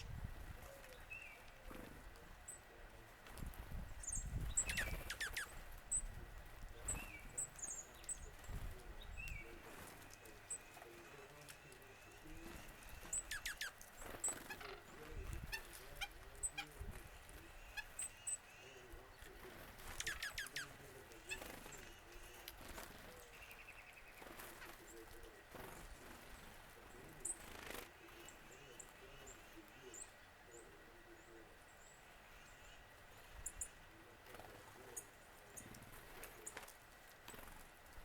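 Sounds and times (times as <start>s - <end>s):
low wind rumble: 0.0s - 10.6s.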